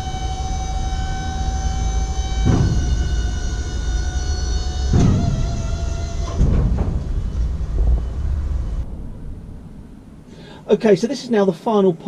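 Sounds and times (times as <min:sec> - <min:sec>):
low steady rumble: 0:00.0 - 0:12.0
thin steady hum: 0:00.0 - 0:12.0
knocks: 0:02.4 - 0:04.2, 0:04.9 - 0:08.8.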